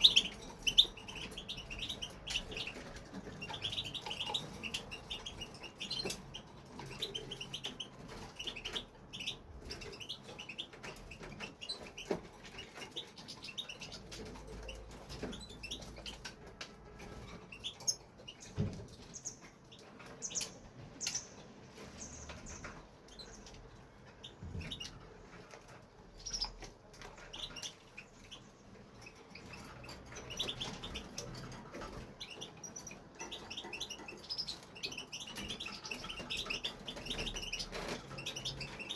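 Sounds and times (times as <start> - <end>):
goldfinch chirping: 0.0 - 38.9.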